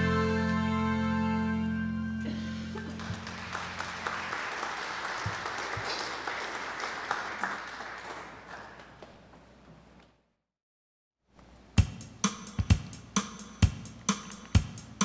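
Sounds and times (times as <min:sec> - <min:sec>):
held final chord of a song: 0:00.0 - 0:03.5
congregation applauding: 0:02.3 - 0:09.4.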